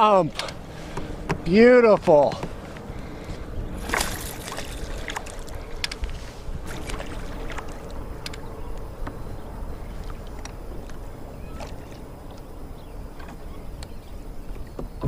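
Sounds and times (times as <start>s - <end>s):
low steady rumble: 0.0s - 15.0s
water splashing around a kayak: 0.0s - 15.0s
light clicks and knocks: 0.3s - 6.2s.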